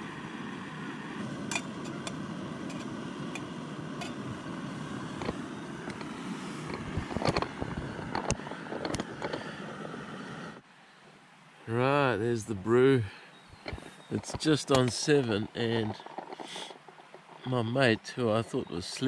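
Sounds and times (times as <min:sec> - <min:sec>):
camp stove burning: 0:00.0 - 0:10.6, 0:13.5 - 0:17.6.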